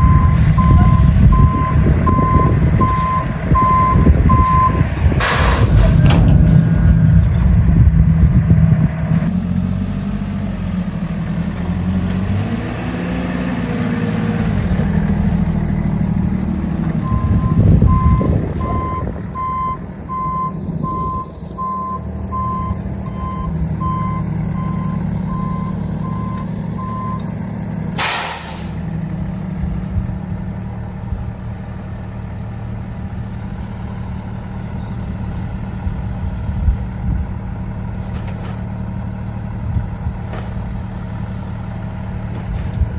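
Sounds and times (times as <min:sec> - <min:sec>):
reverse alarm beeping: 0:00.0 - 0:04.9, 0:17.0 - 0:27.2
garbage truck diesel engine: 0:00.0 - 0:42.9
air brakes hissing: 0:28.0 - 0:28.9.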